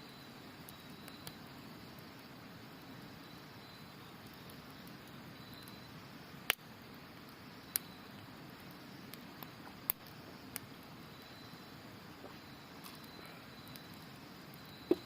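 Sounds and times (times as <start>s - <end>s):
faint insect chirps: 0.0s - 15.0s
campfire crackling and popping: 0.2s - 15.0s.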